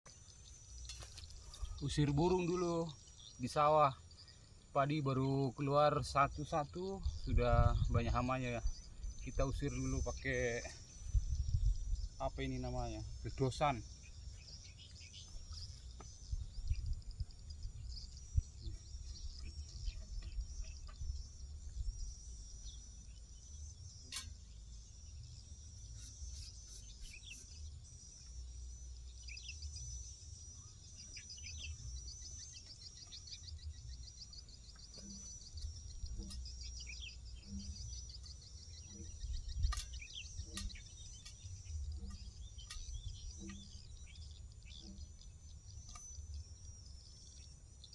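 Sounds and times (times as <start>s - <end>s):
small birds chirping: 0.1s - 47.9s
steady high chirring: 0.1s - 47.9s
wind rumble on microphone: 6.3s - 13.4s, 15.4s - 22.8s, 38.8s - 45.2s.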